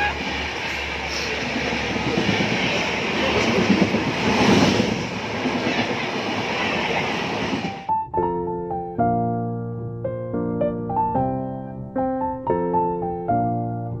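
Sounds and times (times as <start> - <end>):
train carriage running on track: 0.0 - 7.9.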